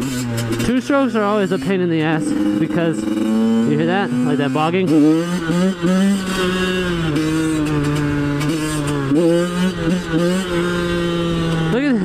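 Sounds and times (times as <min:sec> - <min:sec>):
two-stroke dirt bike engine: 0:00.0 - 0:12.0.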